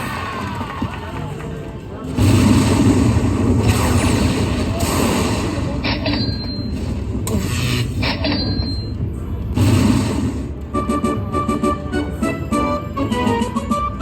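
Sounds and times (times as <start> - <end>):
low rumble of machines and crowd: 0.0 - 14.0
slot machine electronic tune: 10.7 - 14.0.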